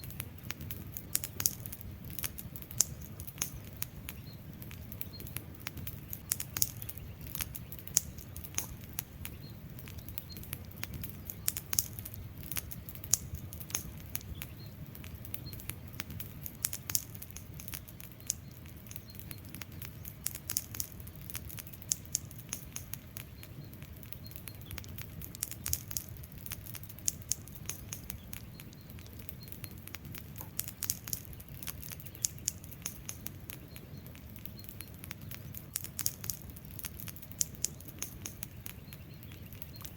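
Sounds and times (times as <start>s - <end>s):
logs crackling and popping: 0.0s - 39.9s
low rumble of flame: 0.0s - 39.9s.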